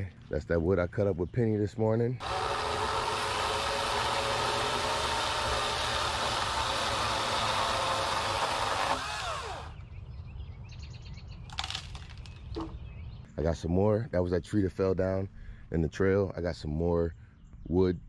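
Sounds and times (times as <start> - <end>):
small engine running: 2.2 - 9.8.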